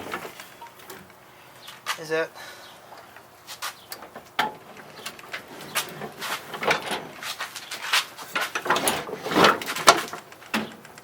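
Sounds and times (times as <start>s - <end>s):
hands and tools clicking and scraping: 3.0s - 11.0s.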